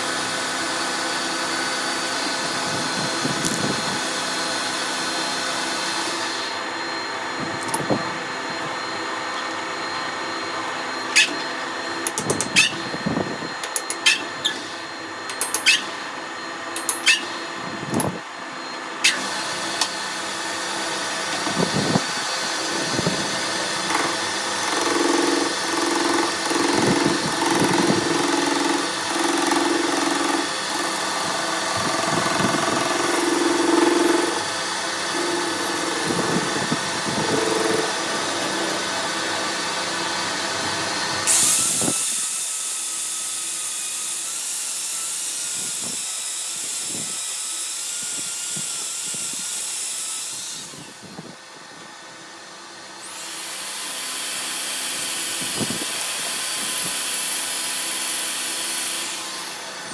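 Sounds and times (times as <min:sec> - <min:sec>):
metalworking machinery running: 0:00.0 - 0:59.9.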